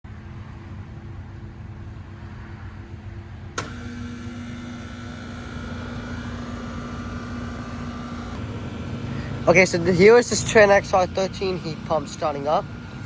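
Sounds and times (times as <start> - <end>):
low background hum: 0.1 - 13.0
compressor humming: 3.6 - 13.0
contactor click: 3.6 - 13.0.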